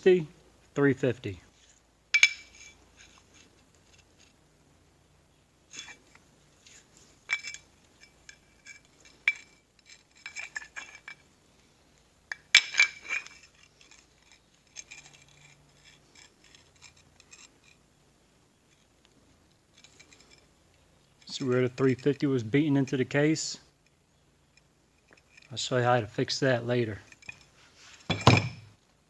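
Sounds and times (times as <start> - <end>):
metal parts clinking on workbench: 2.1 - 3.1, 5.7 - 11.2, 12.3 - 17.8, 27.1 - 28.7.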